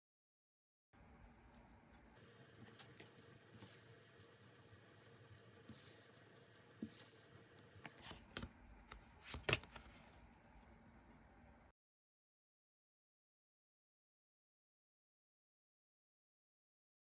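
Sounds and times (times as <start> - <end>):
cards rustling on a table: 6.8 - 10.2.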